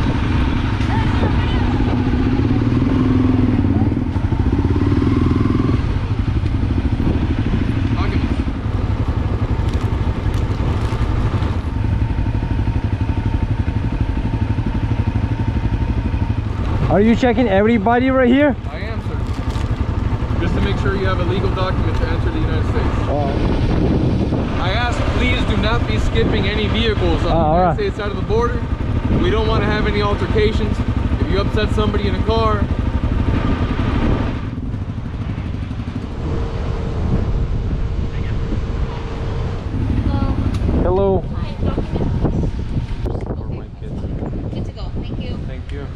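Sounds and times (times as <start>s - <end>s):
wind on microphone: 0.0s - 13.9s, 22.0s - 30.5s, 33.0s - 45.9s
motorcycle engine idling: 0.0s - 45.9s.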